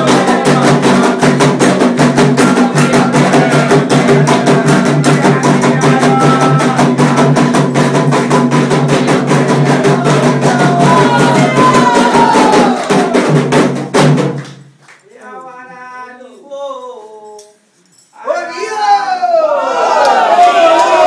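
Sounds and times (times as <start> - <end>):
drums beating quick rhythm: 0.0 - 14.8.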